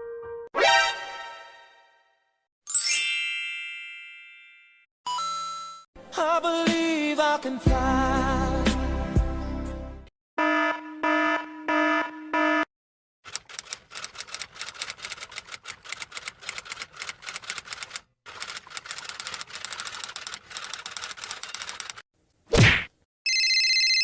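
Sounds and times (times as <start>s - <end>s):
fast keyboard typing: 13.3s - 22.0s.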